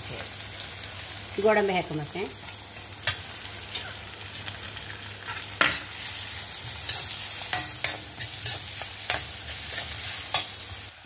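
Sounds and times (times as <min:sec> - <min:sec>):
onions sizzling in oil: 0:00.0 - 0:11.0
spatula scraping a pan: 0:05.2 - 0:10.6.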